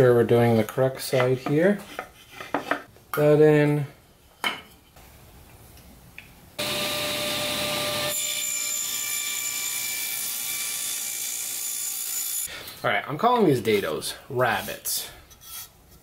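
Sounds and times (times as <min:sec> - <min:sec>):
table saw cutting wood: 0:06.6 - 0:12.5.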